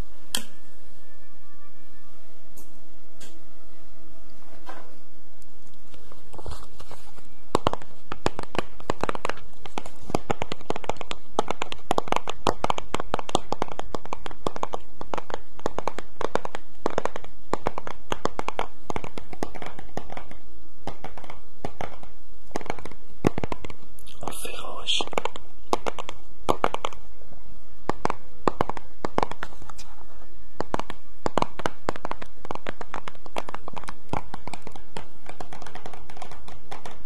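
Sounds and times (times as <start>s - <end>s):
close crackling and clicking: 5.4s - 24.2s, 25.0s - 27.1s, 30.6s - 37.0s.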